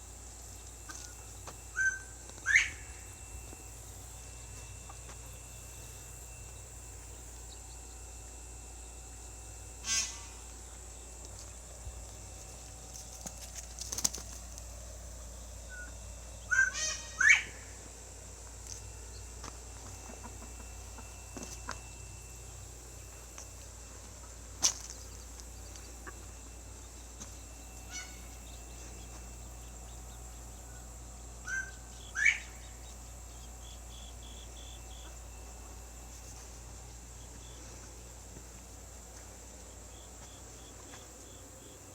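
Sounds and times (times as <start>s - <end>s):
steady insect hum: 0.0s - 41.9s
bird calls: 0.8s - 3.4s, 9.8s - 10.5s, 15.7s - 17.8s, 24.8s - 35.8s.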